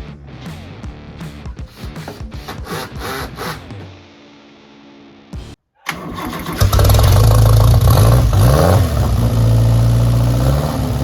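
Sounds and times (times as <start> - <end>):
car engine starting and running: 5.9 - 11.0.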